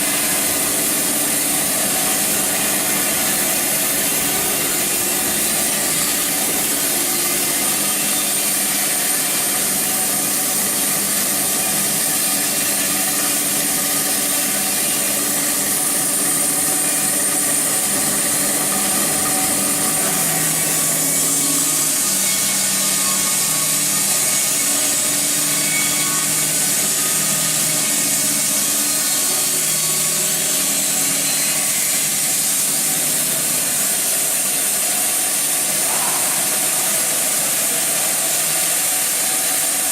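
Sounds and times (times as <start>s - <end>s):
bandsaw cutting through log: 0.0s - 39.9s.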